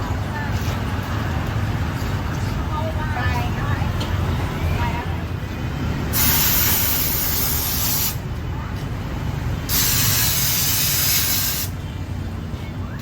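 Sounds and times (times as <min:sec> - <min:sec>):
jet washer spraying water: 0:06.2 - 0:08.2, 0:09.7 - 0:11.7.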